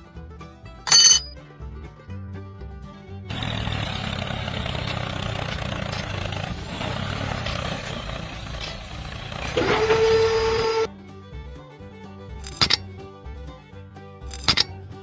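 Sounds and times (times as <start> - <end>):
vehicle engine: 3.3 - 10.9.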